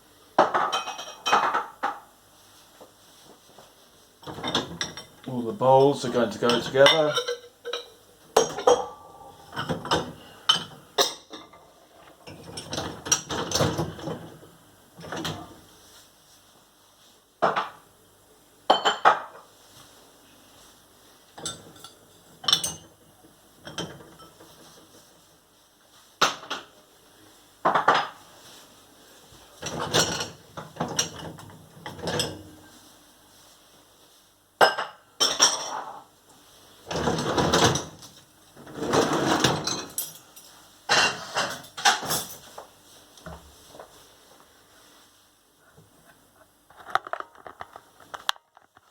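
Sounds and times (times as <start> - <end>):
crockery clinking on worktop: 0.4 - 2.0, 5.8 - 11.6, 18.7 - 19.5.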